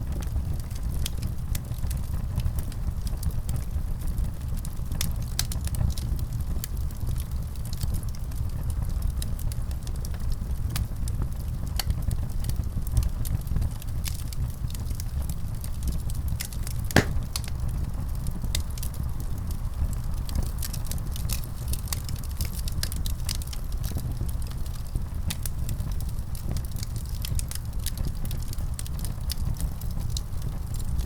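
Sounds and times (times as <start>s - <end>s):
wood fire crackling: 0.0s - 31.0s
fire popping: 14.0s - 19.0s.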